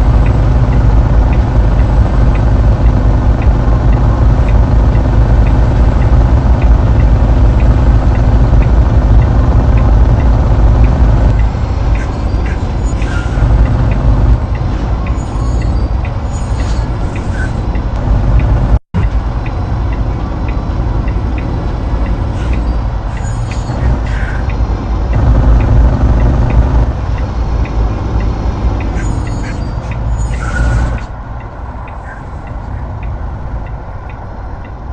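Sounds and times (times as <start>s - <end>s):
vehicle engine and tyre rumble: 0.0s - 34.9s.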